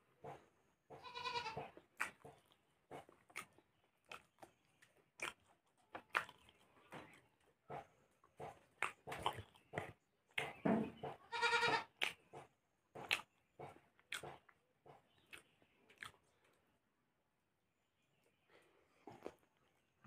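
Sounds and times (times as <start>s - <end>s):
man chewing food: 0.0s - 20.0s
wet lip smacks and clicks: 1.9s - 7.0s, 7.7s - 10.6s, 12.0s - 12.4s, 13.0s - 16.3s.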